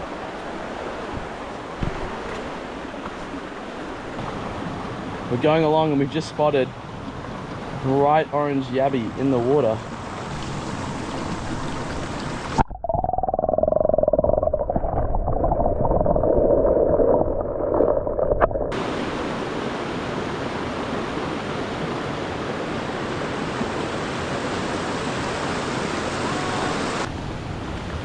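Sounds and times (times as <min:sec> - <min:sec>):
river water rushing: 0:00.0 - 0:12.6, 0:18.7 - 0:28.0.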